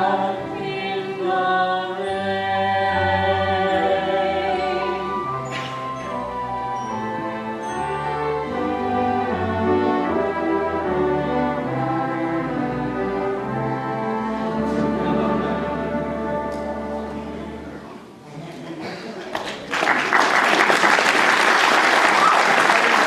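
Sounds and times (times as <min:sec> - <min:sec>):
orchestra playing sustained chords: 0:00.0 - 0:17.9.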